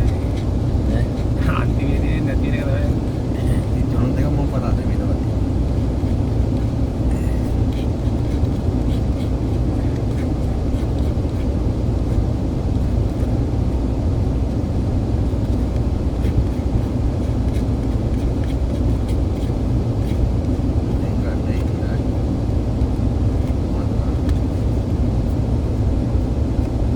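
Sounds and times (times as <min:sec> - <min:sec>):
moving train rumble: 0:00.0 - 0:10.6.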